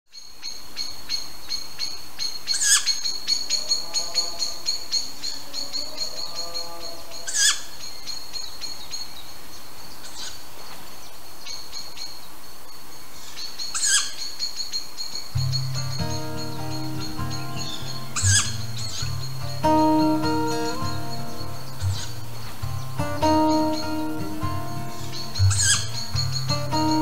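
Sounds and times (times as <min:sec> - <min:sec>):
birds chirping: 0:00.2 - 0:27.0
sharp bird call: 0:15.4 - 0:27.0.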